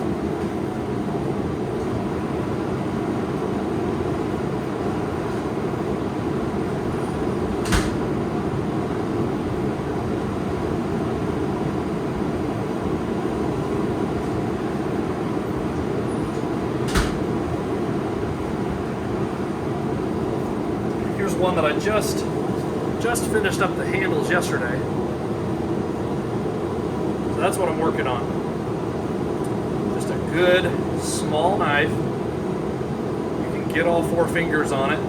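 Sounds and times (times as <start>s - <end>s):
sharp knocks: 7.6s - 8.2s, 16.9s - 17.4s.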